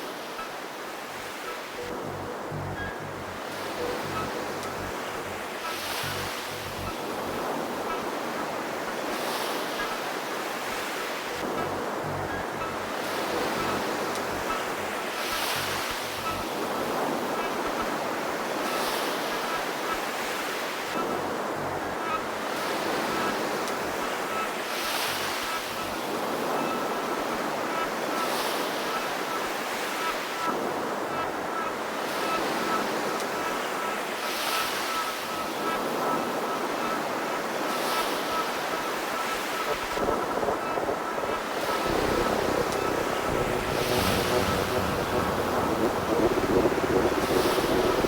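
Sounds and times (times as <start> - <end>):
synthesized noise swelling and ebbing: 41.7 - 48.0.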